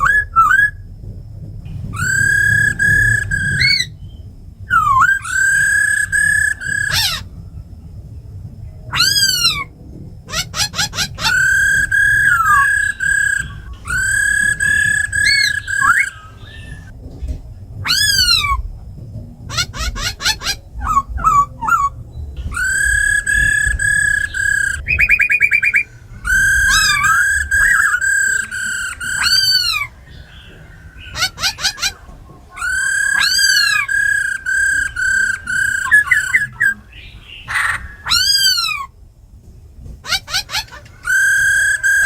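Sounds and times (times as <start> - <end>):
bird singing whistled phrases: 0.0 - 0.8, 2.0 - 7.3, 10.3 - 16.9, 19.5 - 32.0, 32.6 - 38.9
bird trill: 0.0 - 0.9, 1.9 - 7.8, 8.7 - 17.0, 17.8 - 18.7, 19.4 - 39.0, 40.0 - 42.0
harsh bird call: 1.9 - 7.3, 8.9 - 17.0, 17.8 - 18.6, 19.5 - 39.0, 40.0 - 42.0.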